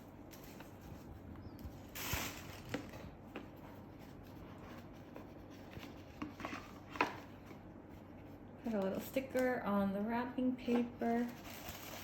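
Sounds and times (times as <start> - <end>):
wrapping paper rustling: 1.7 - 7.0, 11.0 - 12.0.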